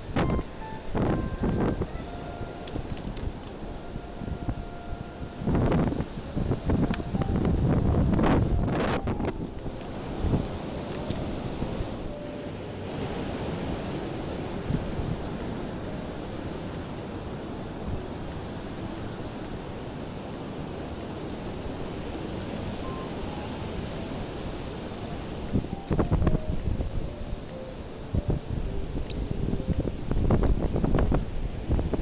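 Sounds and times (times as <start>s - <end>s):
small birds chirping: 0.0s - 2.4s, 8.1s - 12.7s, 13.7s - 16.8s, 17.4s - 20.2s, 21.1s - 24.0s, 25.0s - 25.3s, 26.8s - 27.5s, 28.9s - 30.0s
wind buffeting microphone: 0.0s - 32.0s.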